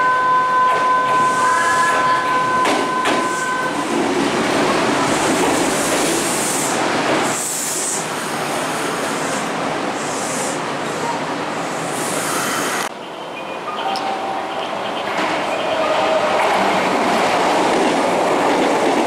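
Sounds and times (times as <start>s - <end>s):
electric train rolling past: 0.0s - 19.0s.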